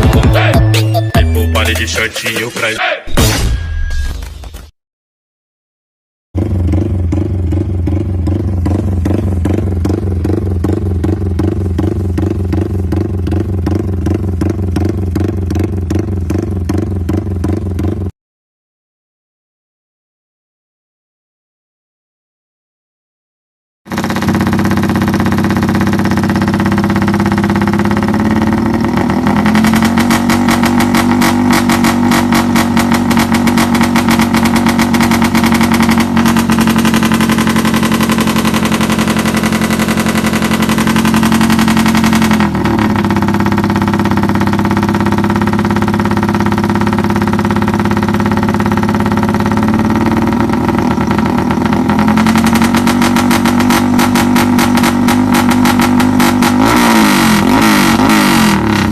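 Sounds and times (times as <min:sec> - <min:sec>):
motorcycle engine revving: 0:06.4 - 0:18.1, 0:23.9 - 0:58.9
fast stuttering pulse: 0:23.9 - 0:58.9.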